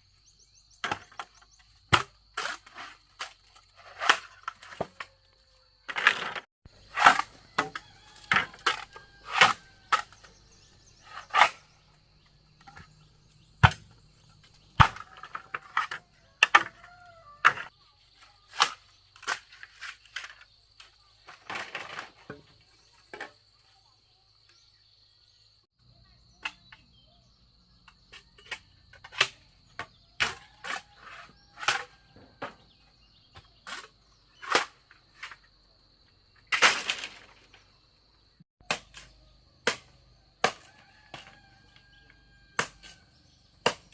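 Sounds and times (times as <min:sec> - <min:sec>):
sharp knocks and cracks: 0:13.6 - 0:17.7, 0:36.5 - 0:37.6, 0:38.6 - 0:41.4, 0:42.6 - 0:43.0, 0:43.6 - 0:43.9.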